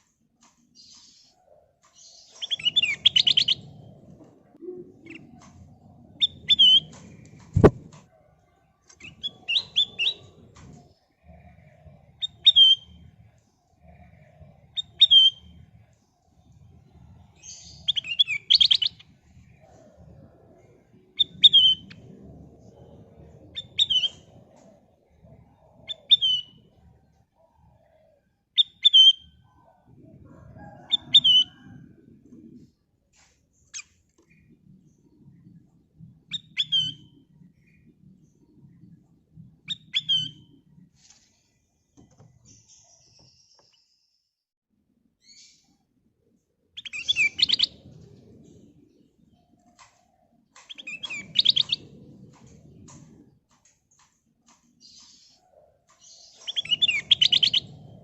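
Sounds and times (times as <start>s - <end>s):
bulbul chirping: 7.6s - 7.9s
sharp knock: 7.6s - 7.9s.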